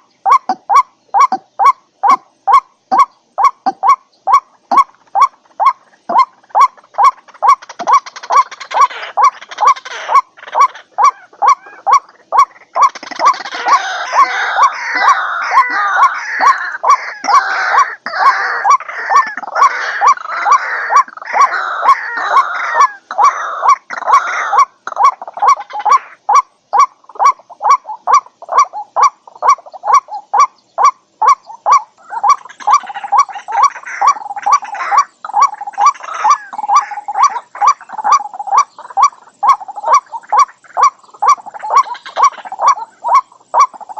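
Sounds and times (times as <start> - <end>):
harsh croaking and chattering: 0.0 - 43.9
waterhen short repeated notes: 0.0 - 43.9.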